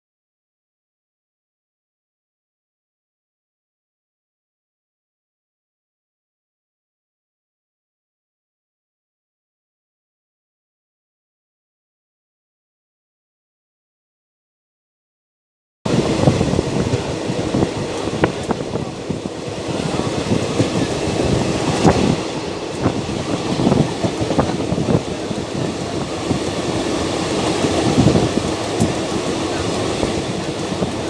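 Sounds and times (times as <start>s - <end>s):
train wheels rumbling on rails: 15.9s - 31.0s.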